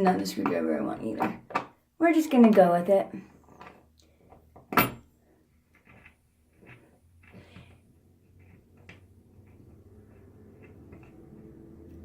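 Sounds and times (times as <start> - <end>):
screwdriver clicking and scraping: 8.2 - 12.0.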